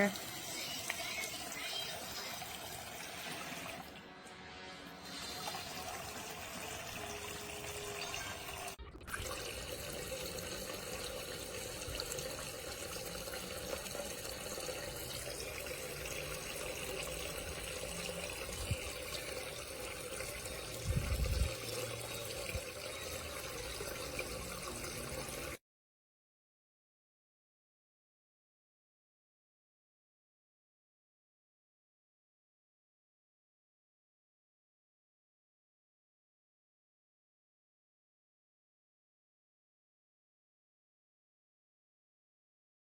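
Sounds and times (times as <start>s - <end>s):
water running from toy faucet: 0.0s - 4.0s, 5.0s - 25.6s.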